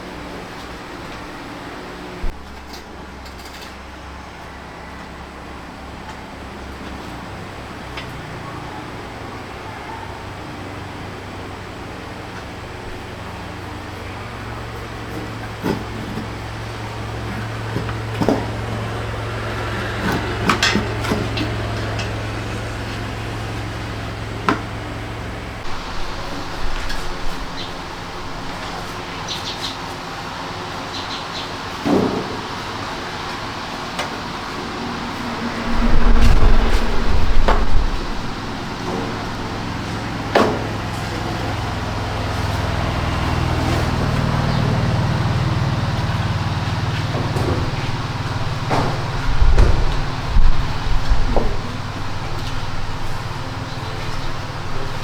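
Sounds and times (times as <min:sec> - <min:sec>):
low mechanical hum: 0:00.0 - 0:55.0
steady low hum: 0:32.5 - 0:40.4.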